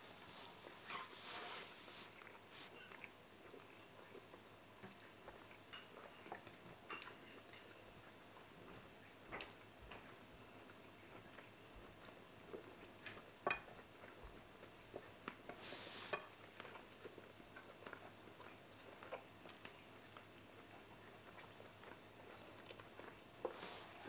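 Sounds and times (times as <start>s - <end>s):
hiss-like rustle: 0.0s - 2.8s
people chewing: 0.3s - 24.0s.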